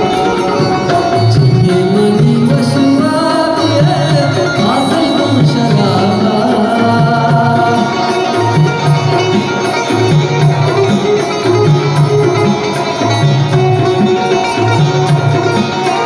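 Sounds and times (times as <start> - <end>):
person singing: 0.0 - 9.2
repeating drum rhythm: 0.0 - 16.0
string instruments: 0.0 - 16.0.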